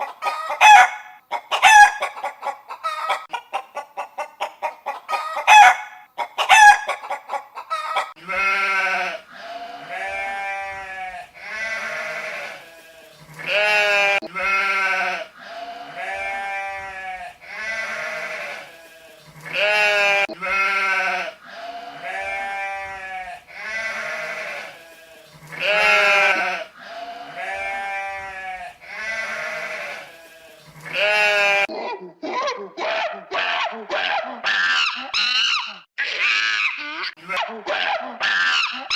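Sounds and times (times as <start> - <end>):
sheep bleating: 8.2 - 31.7.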